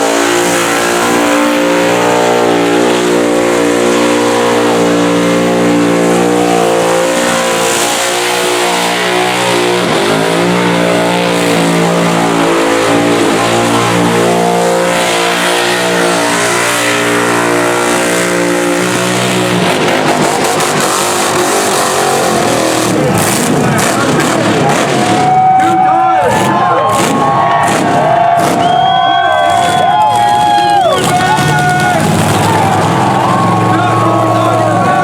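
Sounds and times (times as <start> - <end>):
engine at high revs: 0.0 - 35.0
tyres spinning: 25.6 - 35.0.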